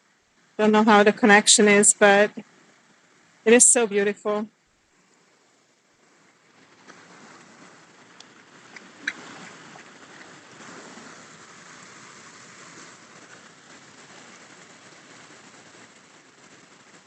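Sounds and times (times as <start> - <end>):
river water flowing over rocks: 5.8 - 17.0.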